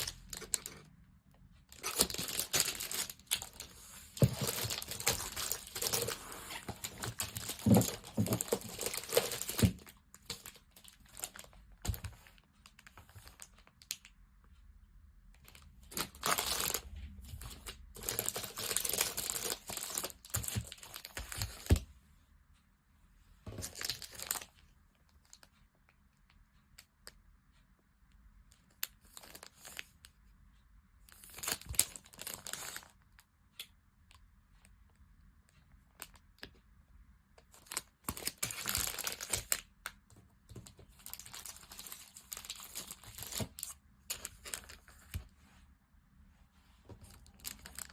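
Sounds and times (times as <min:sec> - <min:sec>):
small clicks and handling noises: 0:00.0 - 0:22.0, 0:23.4 - 0:45.5, 0:46.8 - 0:47.9
packaging crinkling and tearing: 0:01.7 - 0:12.0, 0:15.9 - 0:16.8, 0:17.4 - 0:21.7, 0:37.5 - 0:39.7, 0:40.6 - 0:45.2, 0:47.0 - 0:47.9.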